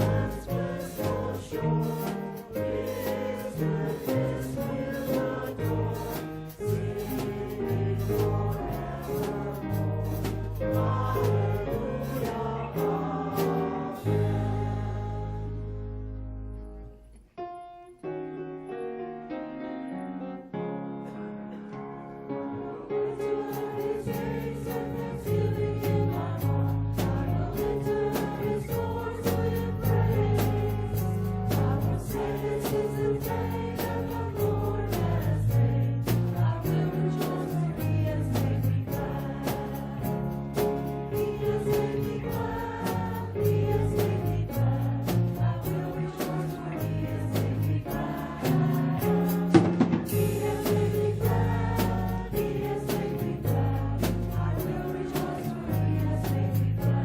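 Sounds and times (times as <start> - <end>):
drums with steady beat: 0.0 - 15.0, 23.4 - 57.0
voices singing: 0.0 - 15.9, 22.6 - 57.0
bass: 0.0 - 17.3, 21.9 - 57.0
instrumental accompaniment: 0.0 - 18.0, 20.0 - 57.0
sustained keyboard chords: 23.3 - 57.0.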